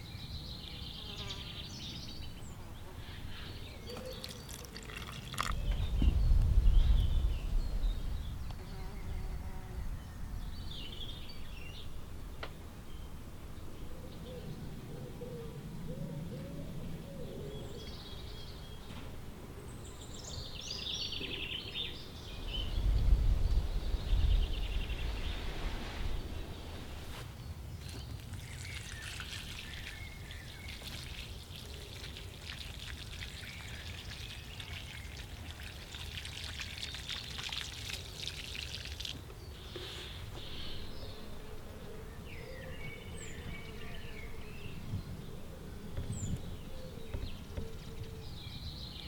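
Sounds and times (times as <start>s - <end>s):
birds chirping: 3.1s - 11.9s, 19.8s - 35.5s
water pouring and spattering: 4.1s - 6.2s, 27.8s - 39.8s.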